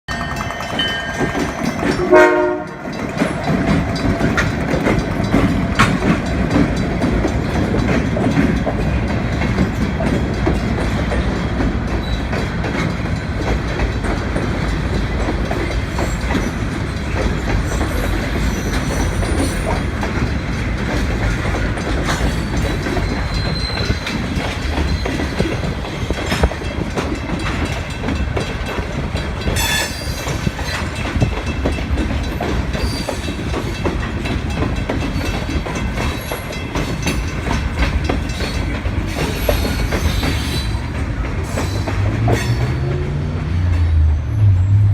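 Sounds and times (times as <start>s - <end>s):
wheels clicking over rail joints: 0.1s - 44.1s
rumble of rail cars rolling: 0.1s - 44.9s
locomotive horn blast: 2.0s - 2.9s.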